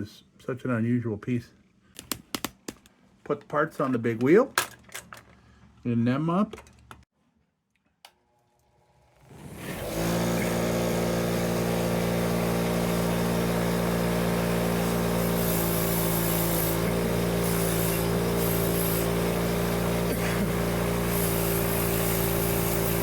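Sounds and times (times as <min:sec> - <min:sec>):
bench wheel motor humming: 0:09.2 - 0:23.0
metal grinding hiss: 0:14.9 - 0:19.4, 0:20.9 - 0:23.0.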